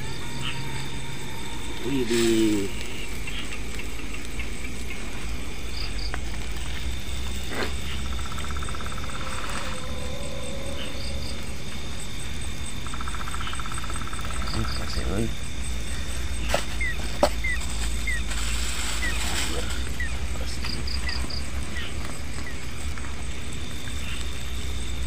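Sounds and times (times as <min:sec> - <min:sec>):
crickets trilling: 0:00.0 - 0:25.0
insect rapid pulsing: 0:00.0 - 0:25.0.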